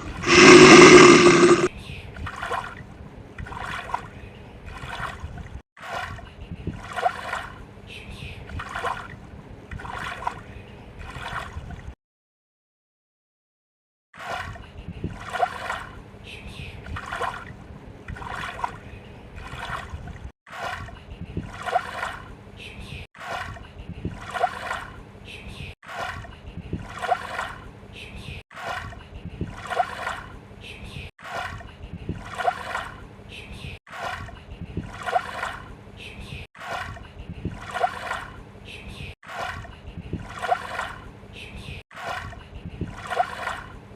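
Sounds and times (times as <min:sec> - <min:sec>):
water sloshing and splashing: 0:02.2 - 0:07.8, 0:08.4 - 0:12.0, 0:14.2 - 0:16.2, 0:16.8 - 0:22.4, 0:23.2 - 0:25.1, 0:25.8 - 0:27.8, 0:28.5 - 0:30.5, 0:31.2 - 0:33.2, 0:33.8 - 0:35.9, 0:36.5 - 0:38.5, 0:39.2 - 0:41.2, 0:41.9 - 0:43.9.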